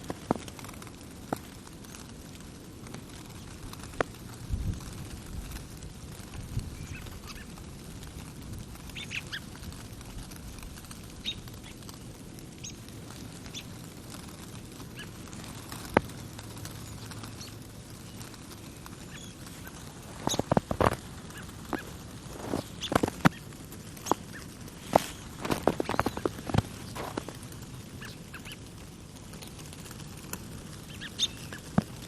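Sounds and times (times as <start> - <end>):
birds chirping: 6.7 - 7.6, 8.8 - 9.6, 10.3 - 29.7, 30.8 - 31.8
footsteps crunching in snow: 19.4 - 27.6.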